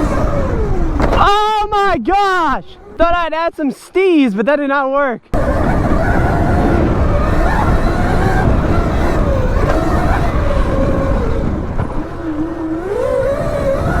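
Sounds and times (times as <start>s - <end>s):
dirt bike engine running: 0.0s - 1.6s, 5.4s - 14.0s.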